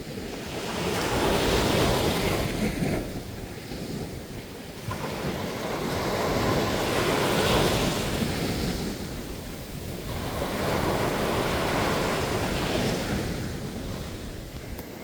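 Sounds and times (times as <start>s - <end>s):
ocean waves breaking on beach: 0.0s - 15.0s
wind noise on microphone: 0.0s - 15.0s.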